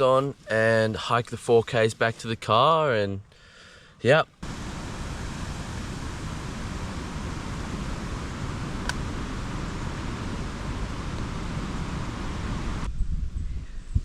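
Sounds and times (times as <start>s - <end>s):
wind buffeting microphone: 4.4s - 14.0s.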